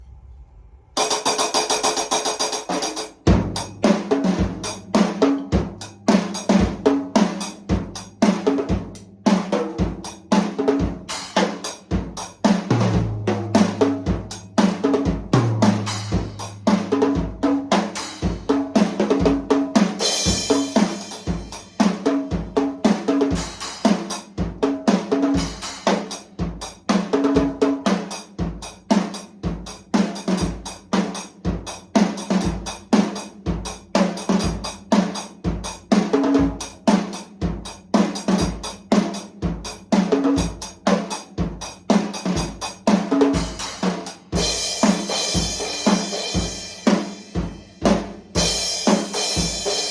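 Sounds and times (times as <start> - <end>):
cymbal crashes: 0.0 - 6.8
drum kit beat: 1.0 - 49.9.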